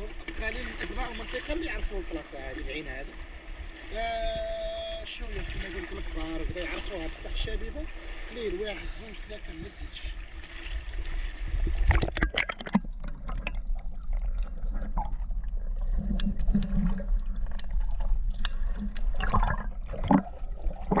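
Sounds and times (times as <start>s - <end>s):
sea water sloshing and splashing: 0.0s - 21.0s.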